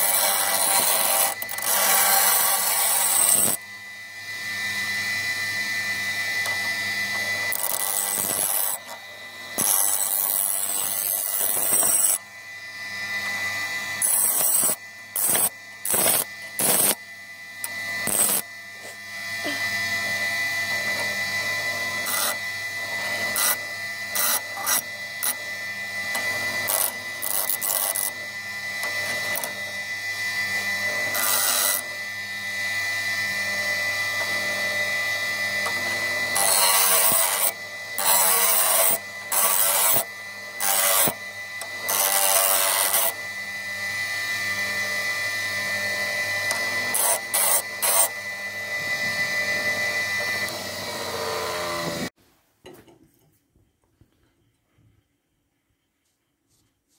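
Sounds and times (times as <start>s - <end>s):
power tool motor whining: 0.0s - 52.2s.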